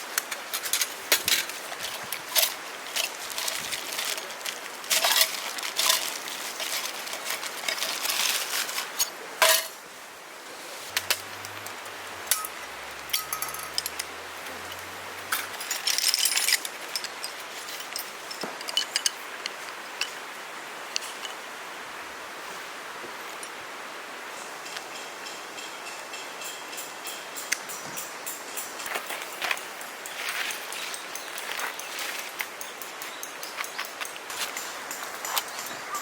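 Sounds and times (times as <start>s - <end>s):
gear clicking and clinking: 0.2s - 9.7s, 10.9s - 19.2s.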